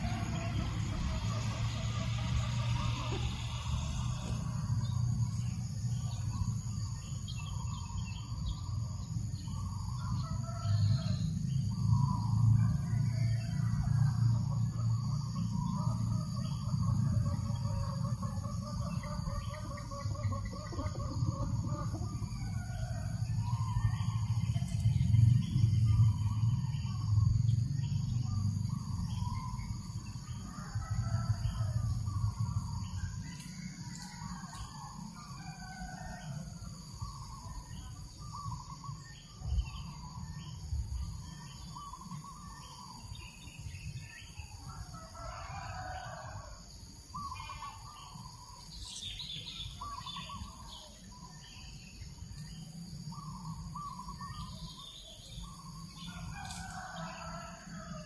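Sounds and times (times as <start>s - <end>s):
wind rumble on microphone: 18.7s - 33.4s, 38.4s - 42.1s.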